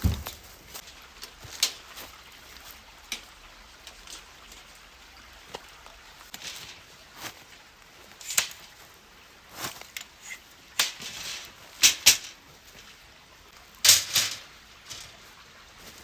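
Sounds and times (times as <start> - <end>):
sharp clicks and knocks: 0.0 - 0.5.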